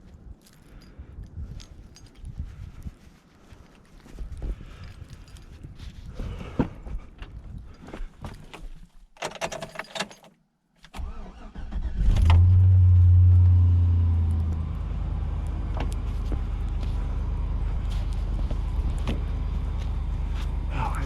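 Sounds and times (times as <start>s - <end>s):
engine starting and idling: 11.0s - 13.3s.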